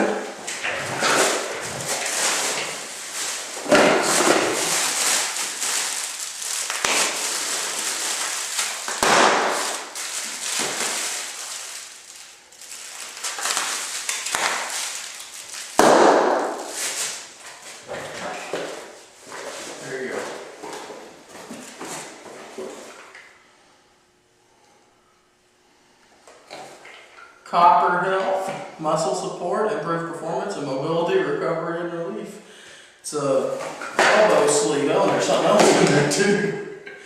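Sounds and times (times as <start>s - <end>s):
packaging crinkling and tearing: 0.5s - 18.9s.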